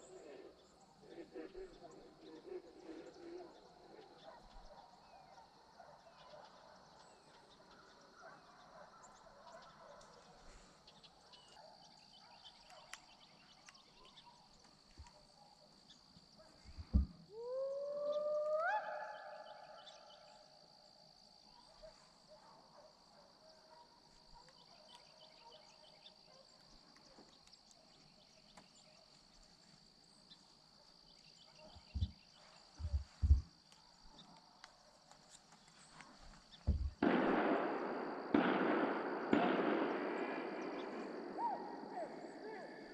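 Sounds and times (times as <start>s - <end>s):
low thumps: 16.8s - 17.2s, 31.8s - 32.2s, 32.8s - 33.5s, 36.7s - 37.6s
dog howling: 17.3s - 19.6s.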